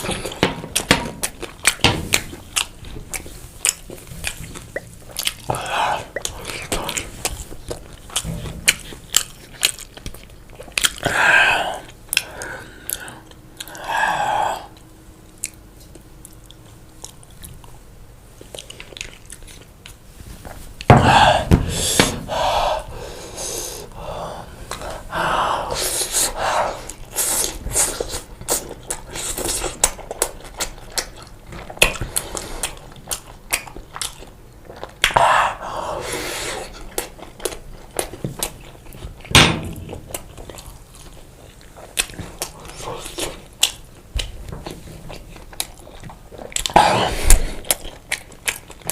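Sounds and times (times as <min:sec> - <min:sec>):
chewing pizza: 0:00.0 - 0:21.4, 0:22.2 - 0:48.9.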